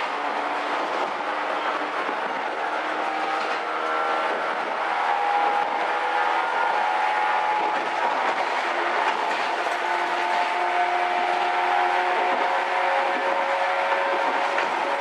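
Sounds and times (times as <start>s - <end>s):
rumble of moving train: 0.0s - 15.0s.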